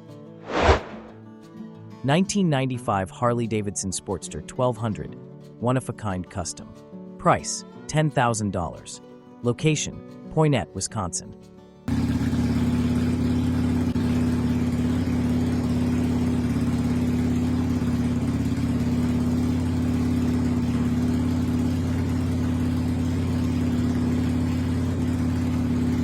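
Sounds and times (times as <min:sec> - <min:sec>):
motorcycle engine idling: 0:11.9 - 0:26.0.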